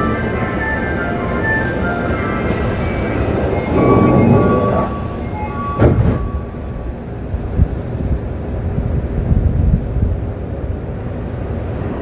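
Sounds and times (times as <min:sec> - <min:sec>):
wheels rumbling on rail: 0:00.0 - 0:12.0
whining motor tones: 0:02.6 - 0:05.7.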